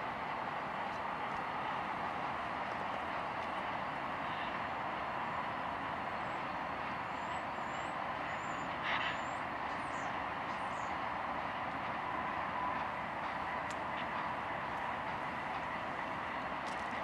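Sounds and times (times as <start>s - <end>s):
steel wheels on rails: 0.0s - 17.0s.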